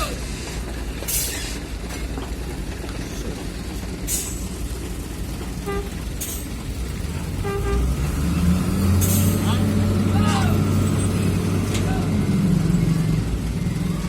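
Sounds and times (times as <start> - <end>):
heavy diesel machinery rumble: 0.0 - 14.0
short horn toots: 7.4 - 7.9.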